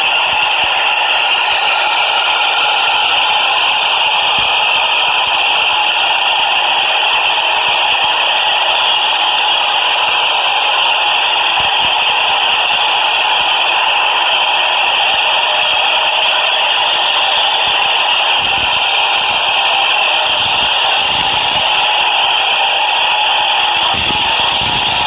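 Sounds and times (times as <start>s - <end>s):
train rattling: 0.0s - 6.9s, 16.7s - 25.0s.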